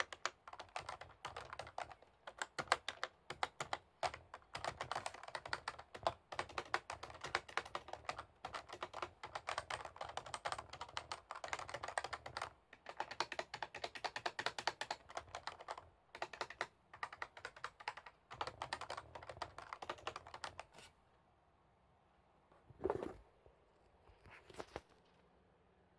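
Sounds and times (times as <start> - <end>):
fast typing on keyboard: 0.0 - 20.7.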